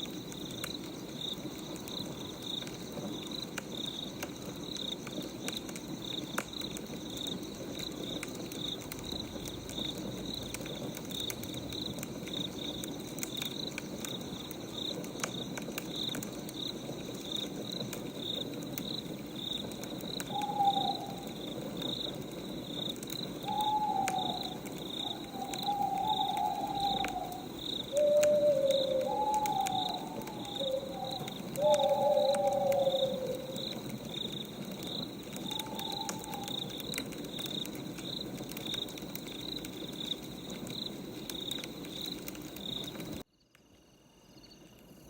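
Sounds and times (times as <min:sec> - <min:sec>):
wood fire crackling: 0:00.0 - 0:43.3
crickets chirping: 0:00.0 - 0:45.0
owl hooting: 0:20.2 - 0:21.6, 0:23.4 - 0:33.9, 0:35.3 - 0:36.9.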